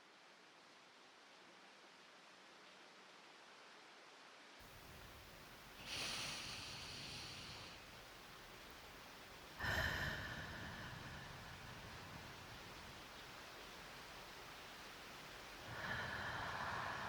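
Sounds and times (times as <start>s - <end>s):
faint steady hiss: 0.0s - 17.0s
breathy sighs: 4.8s - 8.3s, 9.5s - 13.0s, 15.6s - 17.0s.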